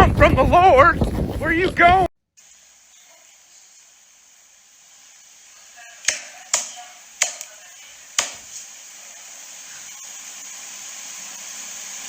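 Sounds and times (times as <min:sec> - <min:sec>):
steady hiss: 0:02.4 - 0:12.0.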